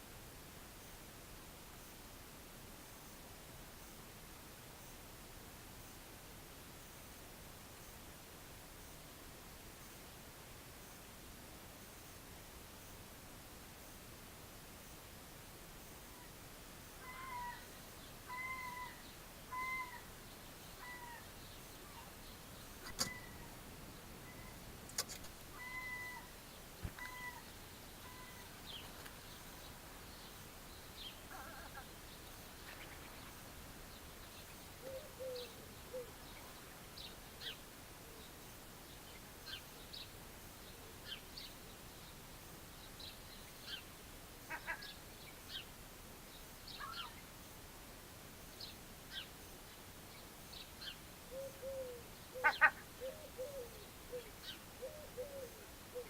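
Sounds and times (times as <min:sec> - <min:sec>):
faint high bird chirps: 0:17.0 - 0:33.4, 0:46.6 - 0:47.3, 0:50.1 - 0:56.0
sharp clicks: 0:24.9 - 0:25.4.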